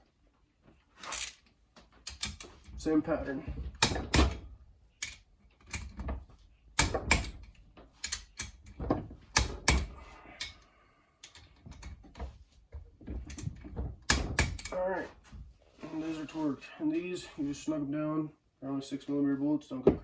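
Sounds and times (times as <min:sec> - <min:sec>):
wrench clicking and knocking: 0:02.0 - 0:02.7, 0:03.8 - 0:04.4, 0:05.0 - 0:06.1, 0:06.8 - 0:10.6, 0:13.3 - 0:14.7.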